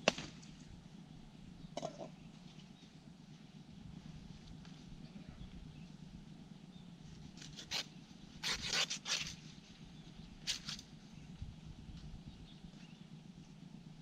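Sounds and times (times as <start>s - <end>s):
low hum: 0.0s - 14.0s
banana leaves rustling: 7.3s - 9.8s.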